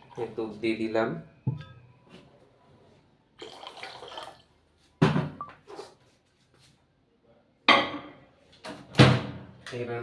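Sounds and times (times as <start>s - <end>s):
milk pouring and splashing: 3.4s - 4.5s.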